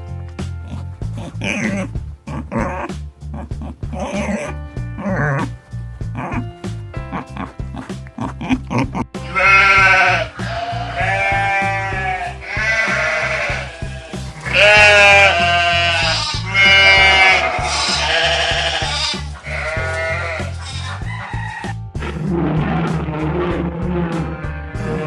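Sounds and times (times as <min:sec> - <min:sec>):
background music with low beat: 0:00.0 - 0:25.0
quavering bleating calls: 0:09.3 - 0:20.8.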